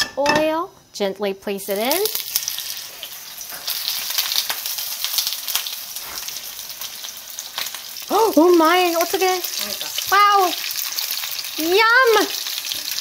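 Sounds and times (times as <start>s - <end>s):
food sizzling in hot oil: 1.5s - 13.0s.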